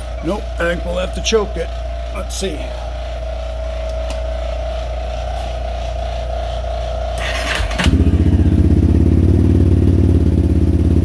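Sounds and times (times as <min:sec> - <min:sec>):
engine running pulsing: 0:00.0 - 0:11.0
engine cranking whir: 0:07.0 - 0:11.0.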